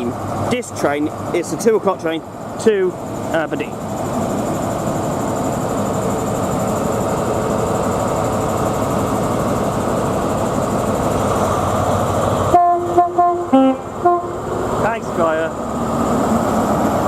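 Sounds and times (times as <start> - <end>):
diesel locomotive running: 0.0 - 17.0
short train horn tones: 12.5 - 14.4.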